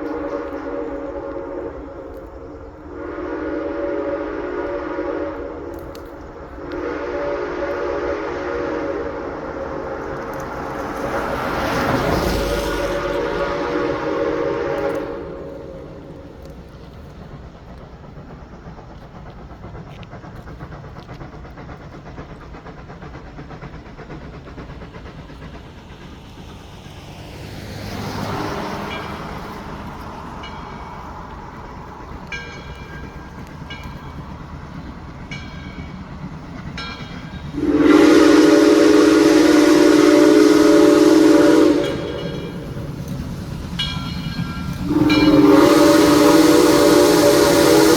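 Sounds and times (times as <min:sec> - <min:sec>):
train whistle long blast: 0:00.0 - 0:16.4, 0:37.5 - 0:43.0, 0:44.7 - 0:47.9
train rumbling past: 0:00.0 - 0:47.9.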